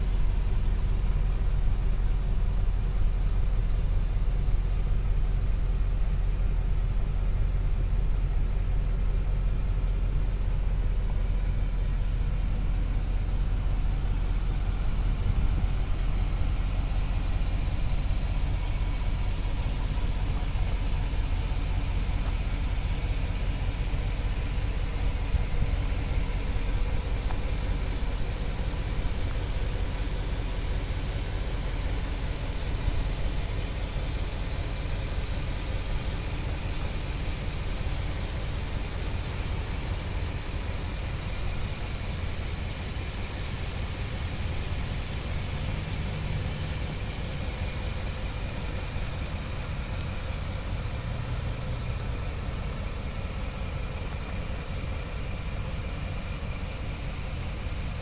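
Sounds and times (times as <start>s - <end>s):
van engine idling: 0.0s - 58.0s
hiss: 13.6s - 58.0s.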